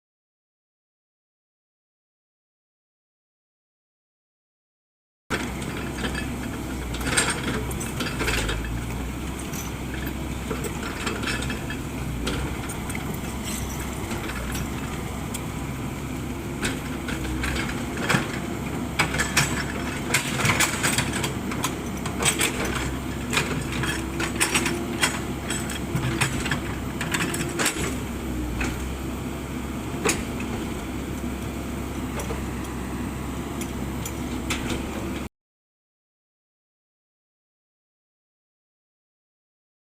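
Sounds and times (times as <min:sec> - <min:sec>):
excavator engine drone: 0:05.3 - 0:35.3.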